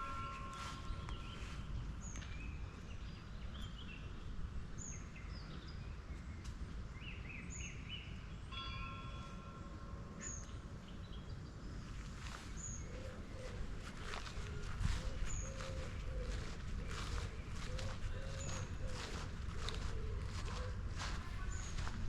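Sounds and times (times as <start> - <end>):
birds singing and calling: 0.0 - 9.1, 10.2 - 22.0
steady low rumble: 11.3 - 22.0.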